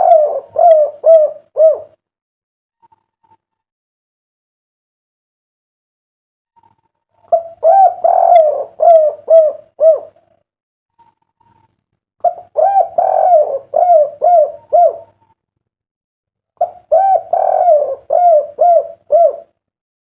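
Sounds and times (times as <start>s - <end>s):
dove cooing: 0.0s - 2.0s, 7.3s - 10.3s, 12.2s - 15.2s, 16.6s - 19.6s.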